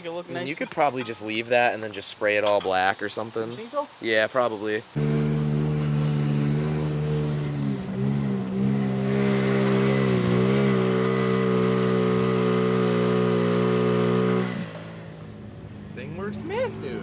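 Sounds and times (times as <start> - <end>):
small vehicle engine running: 5.0 - 17.0.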